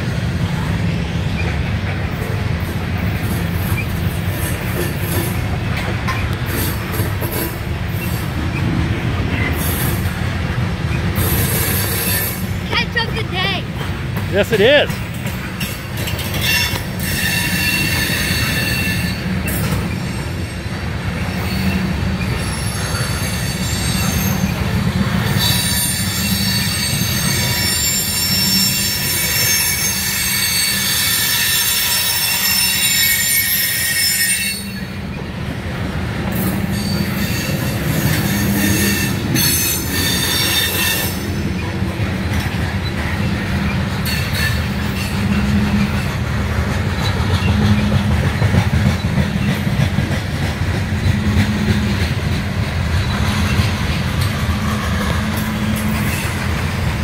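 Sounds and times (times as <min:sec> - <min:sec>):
freight train wheels rumbling on rail: 0:00.0 - 0:57.0
high-pitched wheel squeal: 0:16.3 - 0:20.6, 0:25.3 - 0:35.0, 0:36.4 - 0:41.7.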